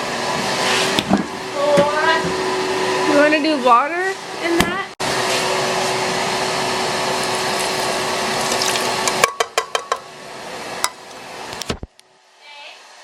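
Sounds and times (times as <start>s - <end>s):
electric appliance motor whirring: 5.4s - 9.2s.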